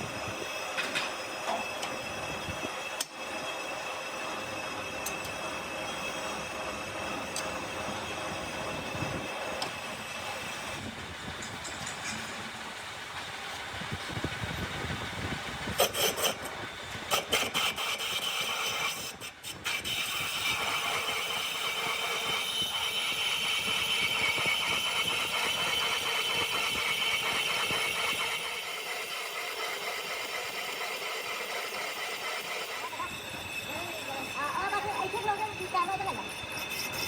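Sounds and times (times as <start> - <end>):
machinery scraping metal: 30.0 - 37.0.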